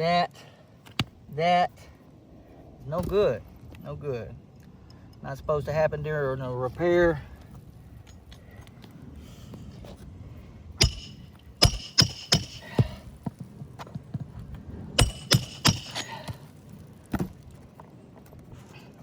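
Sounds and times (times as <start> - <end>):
hammer striking steel bar: 10.8 - 13.0, 15.0 - 16.3.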